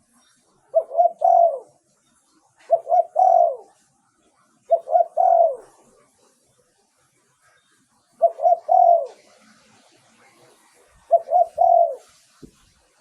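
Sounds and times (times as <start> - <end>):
dove cooing: 0.6 - 1.9, 2.6 - 3.8, 4.6 - 6.4, 8.1 - 12.2.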